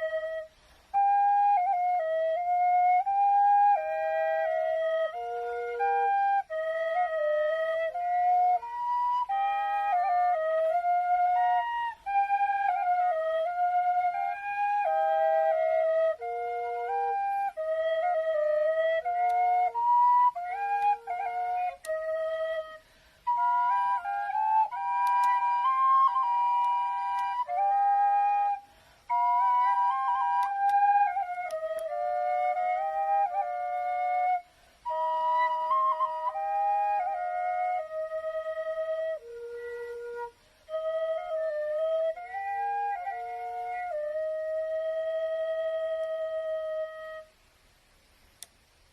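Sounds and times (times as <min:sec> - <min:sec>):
flutes playing in harmony: 0:00.0 - 0:47.8
player breathing: 0:22.8 - 0:23.2, 0:28.6 - 0:29.1.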